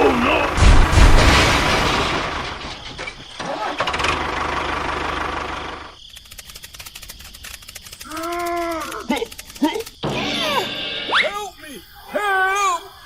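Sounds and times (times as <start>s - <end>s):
small engine running: 3.8s - 8.4s.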